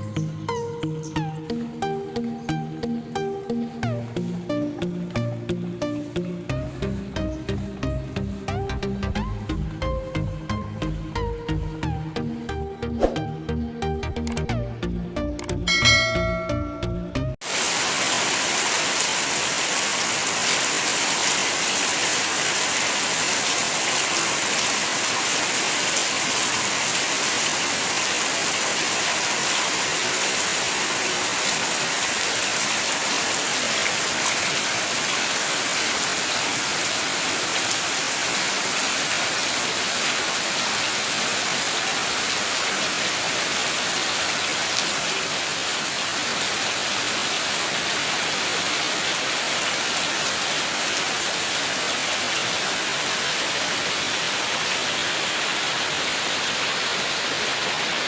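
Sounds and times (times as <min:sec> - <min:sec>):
heavy rain pouring: 0:17.4 - 0:58.0.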